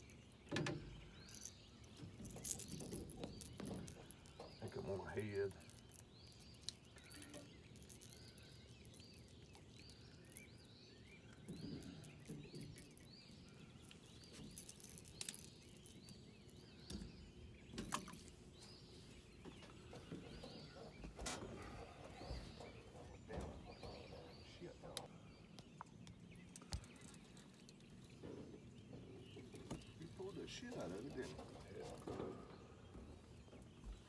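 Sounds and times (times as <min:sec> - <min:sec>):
sharp clicks and knocks: 0:00.0 - 0:08.4
bird chirping: 0:00.0 - 0:34.0.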